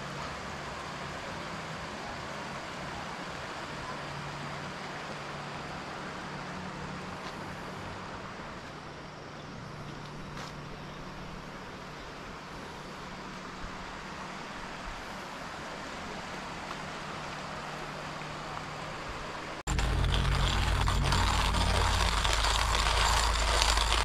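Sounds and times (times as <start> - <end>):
rushing outdoor noise: 0.0 - 24.0
low hum: 19.6 - 24.0.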